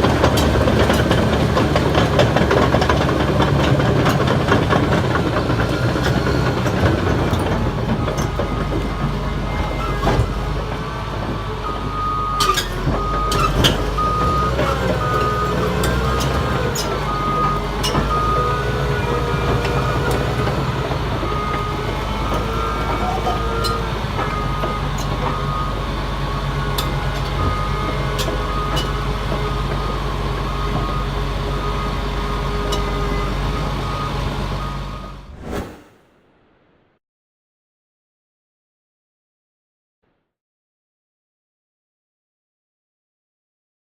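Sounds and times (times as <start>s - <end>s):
diesel engine droning: 0.0s - 35.4s.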